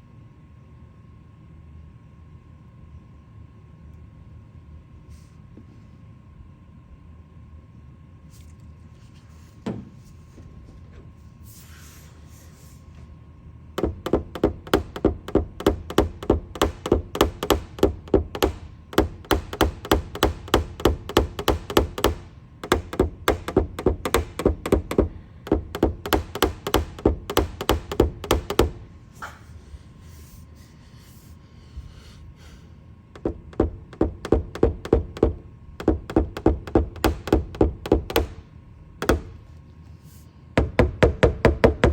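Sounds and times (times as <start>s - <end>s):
hammer tapping on sheet metal: 13.8s - 28.9s, 33.2s - 39.5s, 40.6s - 41.9s.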